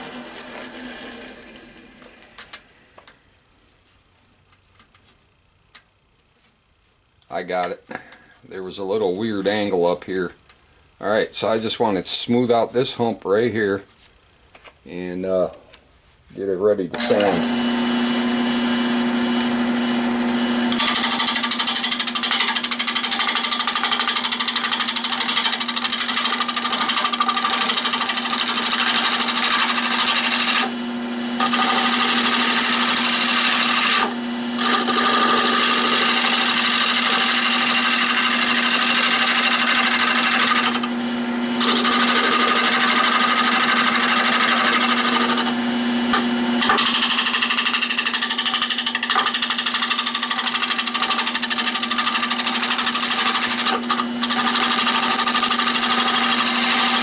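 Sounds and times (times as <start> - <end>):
turning tool cutting wood: 0.0 - 2.6, 16.9 - 57.0
wood lathe humming: 0.0 - 2.6, 16.9 - 57.0.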